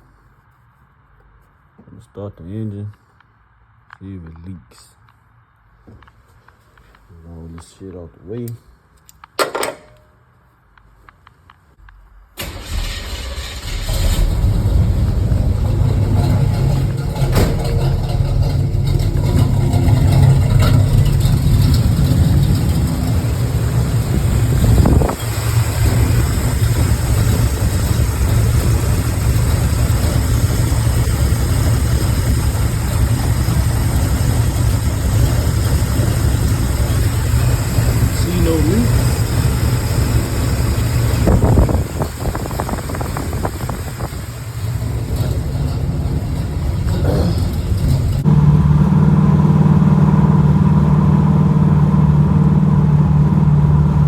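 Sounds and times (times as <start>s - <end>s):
engine cranking: 12.4s - 48.3s
car engine lumpy idle: 14.0s - 54.0s.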